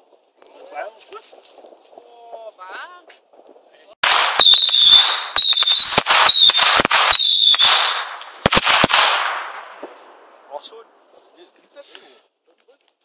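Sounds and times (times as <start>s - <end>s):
firework bangs and cracks: 3.1s - 10.8s
firework whistle: 4.4s - 8.0s.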